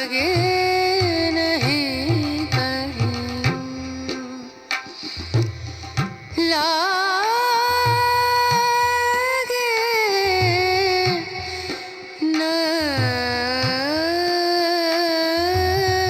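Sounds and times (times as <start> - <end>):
drum beat: 0.4 - 6.5.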